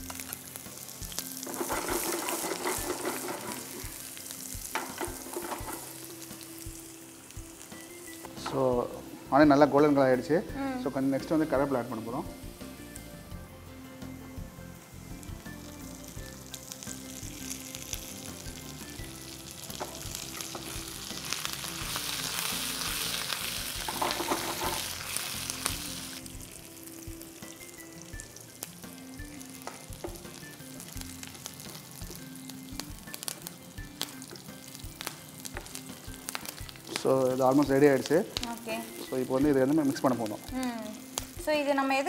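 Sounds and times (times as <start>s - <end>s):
food sizzling in hot oil: 0.0s - 42.0s
spatula stirring in pan: 1.4s - 4.0s.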